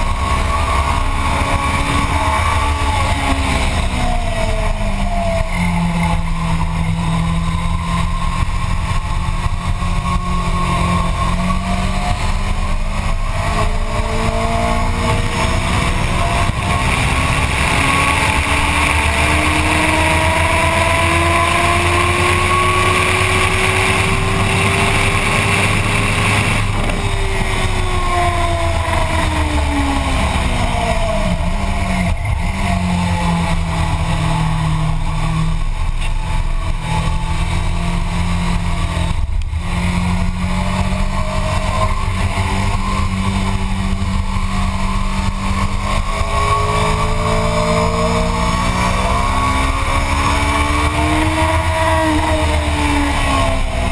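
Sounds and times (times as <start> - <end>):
motorcycle engine accelerating: 0.0 - 53.9
wind rush: 0.2 - 37.7.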